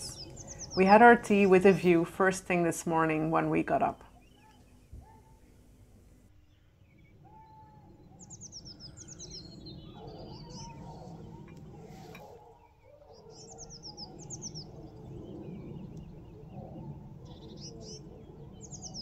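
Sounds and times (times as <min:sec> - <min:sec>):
low background noise: 0:00.0 - 0:13.4
songbird singing: 0:00.0 - 0:19.0.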